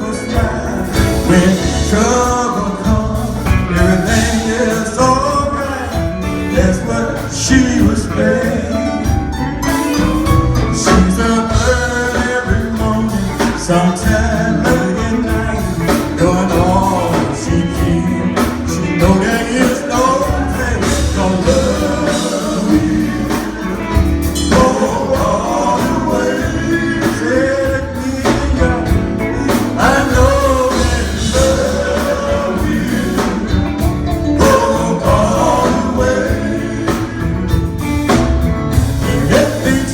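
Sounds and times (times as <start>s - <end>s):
gospel group singing: 0.0s - 39.9s
instrumental accompaniment: 0.0s - 39.9s.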